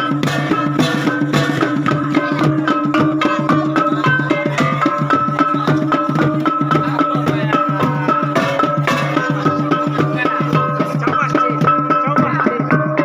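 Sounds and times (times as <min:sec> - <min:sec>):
fast dense drumming: 0:00.0 - 0:13.0
high melody line: 0:00.0 - 0:13.0.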